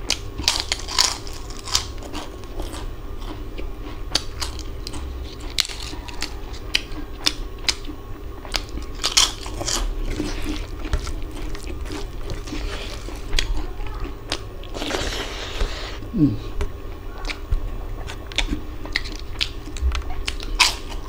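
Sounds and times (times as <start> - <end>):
crisp papad crunching: 0.0 - 7.9, 8.5 - 16.0
chewing: 0.0 - 21.0.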